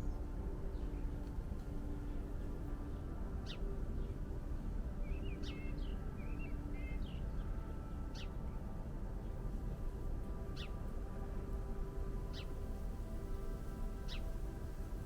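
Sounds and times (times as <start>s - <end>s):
wild birds chirping: 0.0s - 8.4s, 12.2s - 15.0s.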